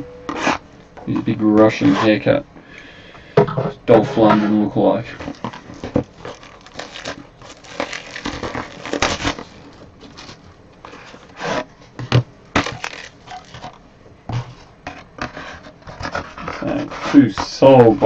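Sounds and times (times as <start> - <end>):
cardboard packaging handled: 5.0 - 13.8.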